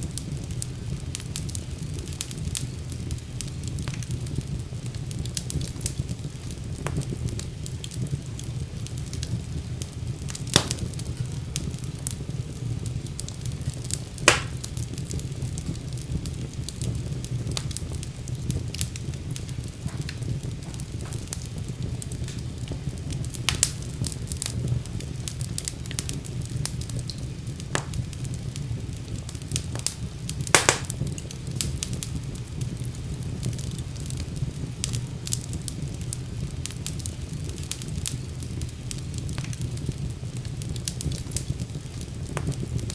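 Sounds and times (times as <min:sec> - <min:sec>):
fire crackling in fireplace: 0:00.0 - 0:42.9.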